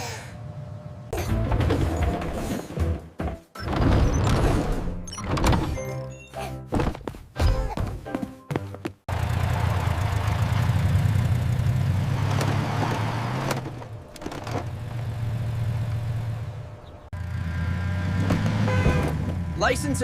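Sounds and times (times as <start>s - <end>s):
vehicle engine running: 9.1s - 20.0s.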